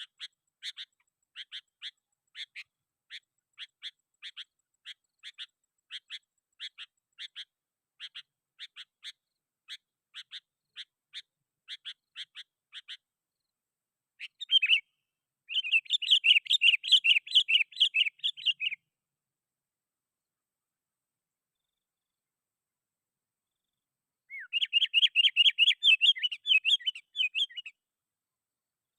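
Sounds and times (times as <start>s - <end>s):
rapid chattering bird song: 0.0s - 13.5s, 14.2s - 18.8s, 23.6s - 27.8s.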